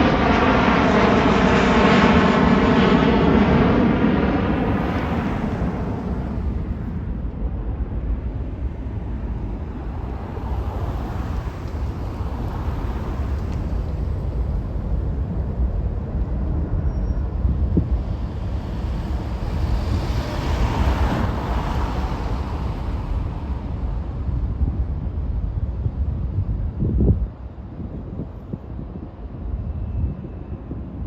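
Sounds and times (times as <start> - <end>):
jet airliner taking off: 0.0 - 31.0
wind rumble on microphone: 0.0 - 31.0.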